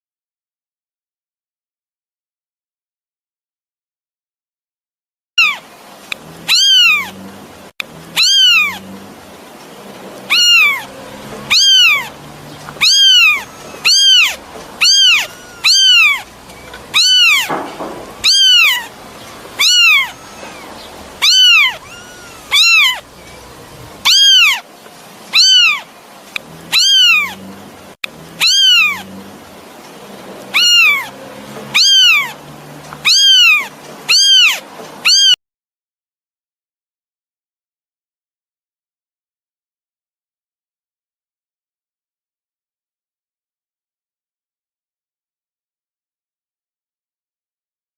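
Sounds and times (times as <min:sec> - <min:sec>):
kitten meowing: 0:05.4 - 0:05.6, 0:06.5 - 0:07.2, 0:08.1 - 0:08.9, 0:10.3 - 0:24.6, 0:25.3 - 0:25.9, 0:26.7 - 0:27.4, 0:28.4 - 0:29.1, 0:30.5 - 0:31.1, 0:31.7 - 0:32.4, 0:33.0 - 0:35.4.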